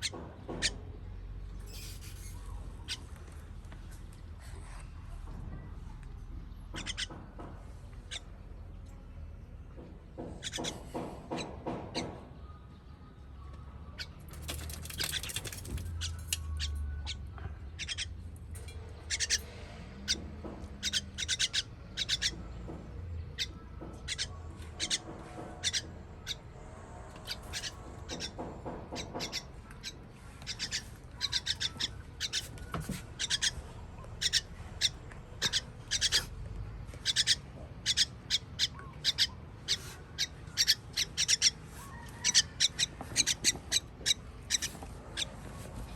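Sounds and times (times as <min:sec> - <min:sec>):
baby birds cheeping: 0:13.7 - 0:26.6, 0:27.2 - 0:36.4, 0:37.0 - 0:45.5.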